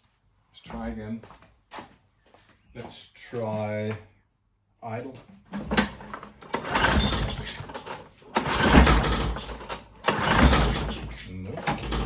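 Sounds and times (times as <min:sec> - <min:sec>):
lawn mower engine cranking: 0:05.6 - 0:12.0
recoil starter pulled: 0:05.6 - 0:12.0.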